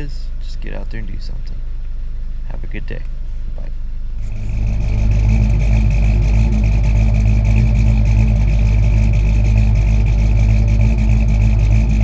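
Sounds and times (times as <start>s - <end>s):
engine running: 4.2s - 12.0s.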